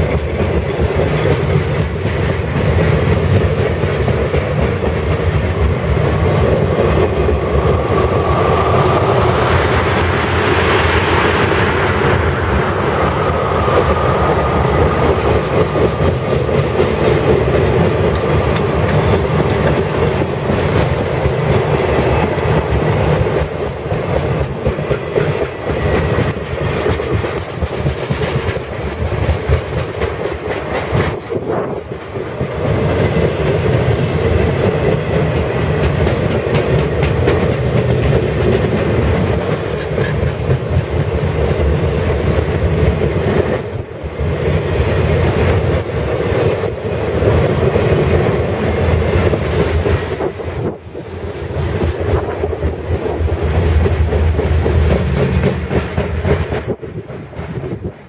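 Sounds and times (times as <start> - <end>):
freight train wheels rattling: 0.0 - 58.0
high-pitched wheel squeal: 34.0 - 34.5.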